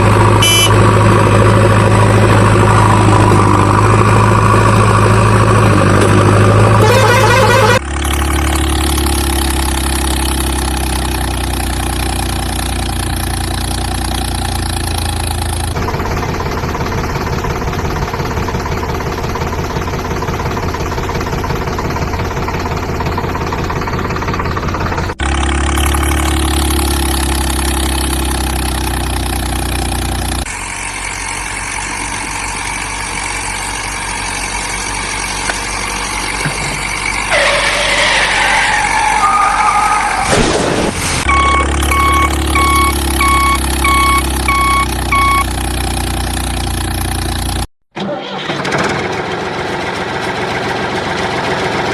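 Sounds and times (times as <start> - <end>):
vehicle engine running: 0.0 - 47.7.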